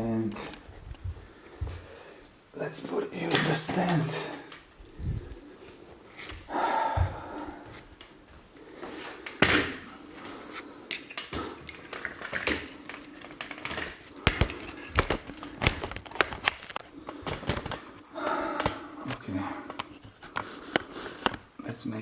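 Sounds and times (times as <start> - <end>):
knocks and clicks of handling: 10.9 - 18.0.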